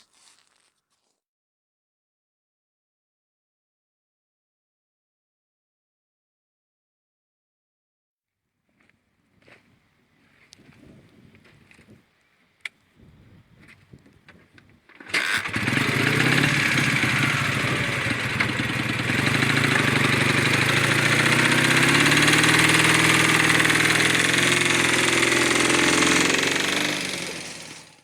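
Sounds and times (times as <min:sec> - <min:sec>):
flat-twin engine running: 0:14.9 - 0:28.0.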